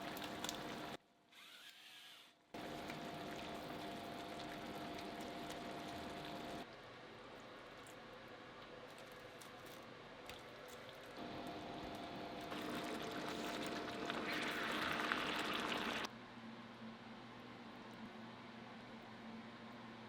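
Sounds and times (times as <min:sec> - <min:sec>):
sauce bubbling in a pan: 0:00.0 - 0:01.0, 0:02.6 - 0:06.6, 0:11.2 - 0:16.1.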